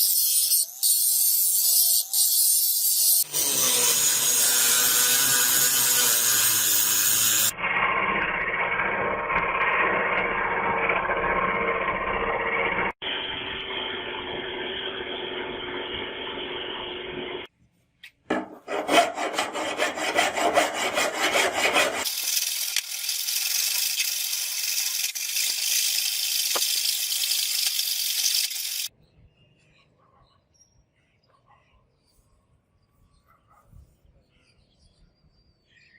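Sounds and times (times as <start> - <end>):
hand tool rasping on workpiece: 18.3 - 22.1.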